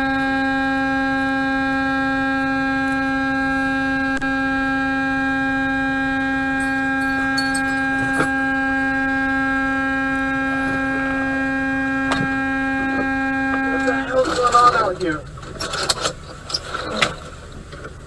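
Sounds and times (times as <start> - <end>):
truck air horn blast: 0.0 - 14.0.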